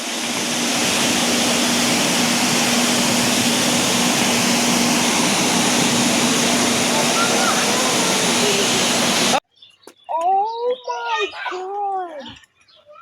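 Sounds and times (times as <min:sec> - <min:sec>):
loud steady rushing noise: 0:00.0 - 0:09.4.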